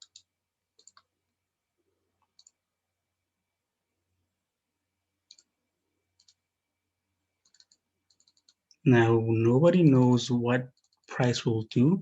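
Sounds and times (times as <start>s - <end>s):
faint computer mouse clicks: 0.0s - 1.1s, 2.2s - 2.6s, 5.3s - 5.5s, 6.2s - 6.4s, 7.4s - 8.8s.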